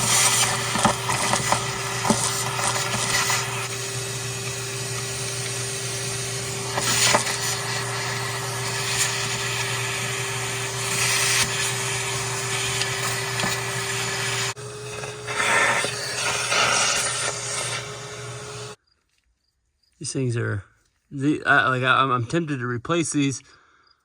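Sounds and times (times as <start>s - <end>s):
machine hum with hiss: 0.0s - 18.8s.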